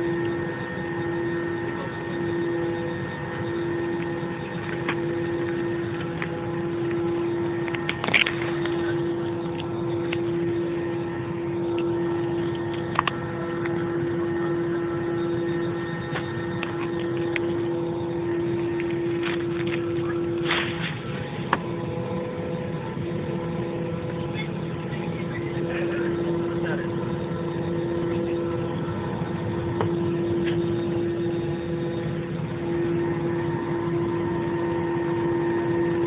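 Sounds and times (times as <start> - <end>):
jet engines droning in cabin: 0.0 - 36.0.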